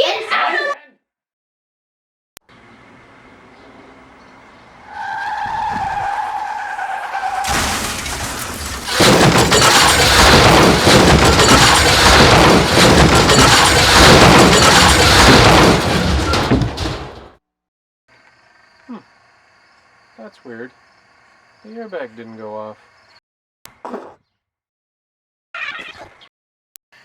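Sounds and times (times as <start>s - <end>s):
car tyres screeching: 2.5s - 17.2s
car crash smashing and crunching: 4.8s - 17.4s.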